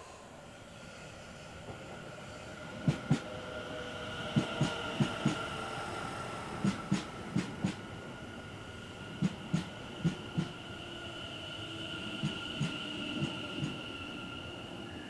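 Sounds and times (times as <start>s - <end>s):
train wheels clicking over rail joint: 4.4s - 5.5s, 6.6s - 7.8s, 9.2s - 10.6s.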